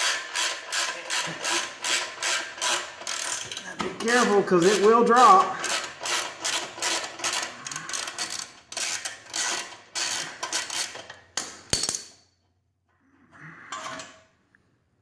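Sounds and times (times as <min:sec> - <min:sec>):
ratchet wrench clicking: 0:00.0 - 0:03.6, 0:05.6 - 0:11.1.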